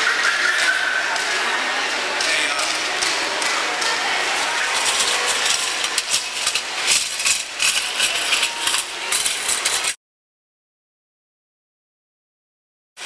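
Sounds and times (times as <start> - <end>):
popcorn machine rushing noise: 0.0 - 10.0.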